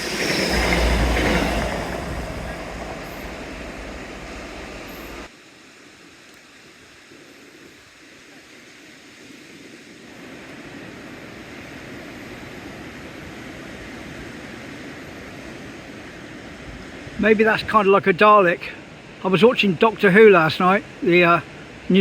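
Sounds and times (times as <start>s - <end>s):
sea surf washing on shore: 0.0s - 5.3s.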